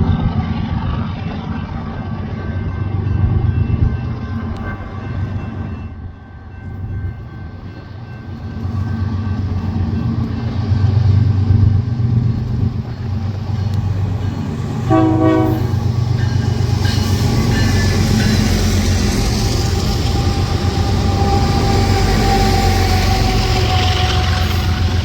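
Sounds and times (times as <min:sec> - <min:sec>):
locomotive rumble: 0:00.0 - 0:25.0
locomotive horn blast: 0:14.8 - 0:15.8.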